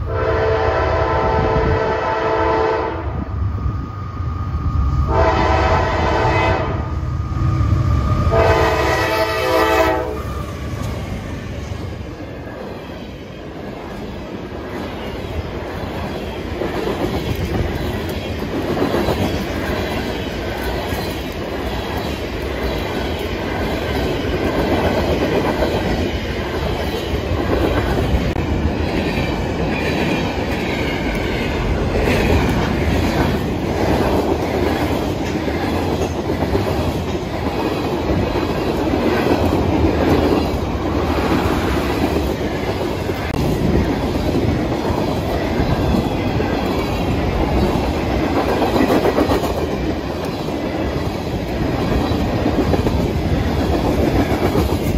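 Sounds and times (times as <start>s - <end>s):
steel wheels rumbling on rails: 0.0s - 54.9s
clickety-clack over rail joints: 13.7s - 54.9s.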